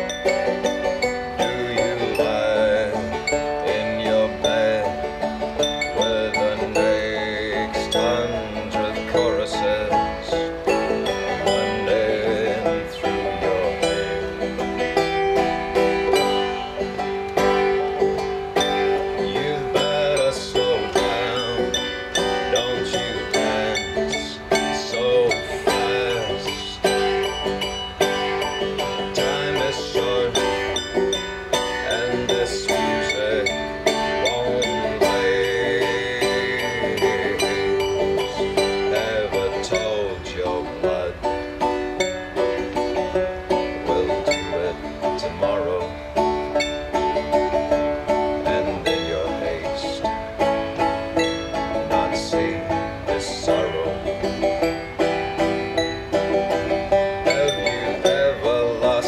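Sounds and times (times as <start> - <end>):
banjo picking: 0.0 - 59.0
sustained accompaniment: 0.0 - 59.0.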